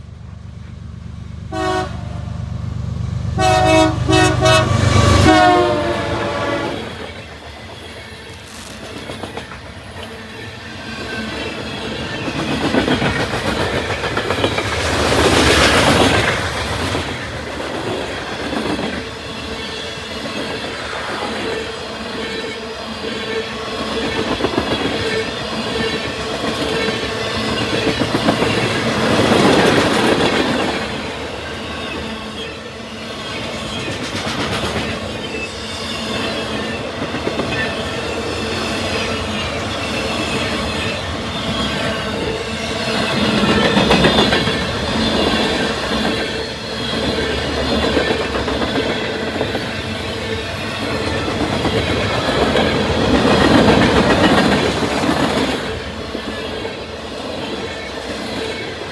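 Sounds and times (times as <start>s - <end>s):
freight train rolling past: 0.0s - 58.9s
wheels clacking over rail joints: 6.8s - 21.1s, 36.1s - 56.3s.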